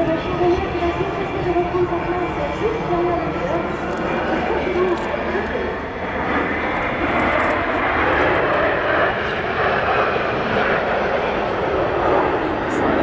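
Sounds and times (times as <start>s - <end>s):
jet engines flying past: 0.0s - 13.0s.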